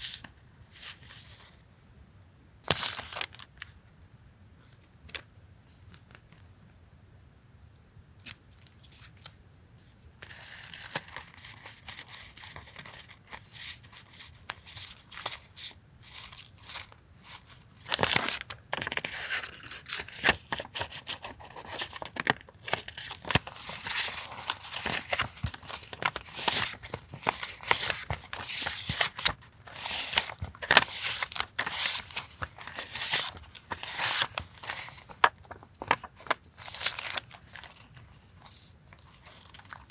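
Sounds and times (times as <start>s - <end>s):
packaging rustling and crinkling: 16.4s - 39.9s.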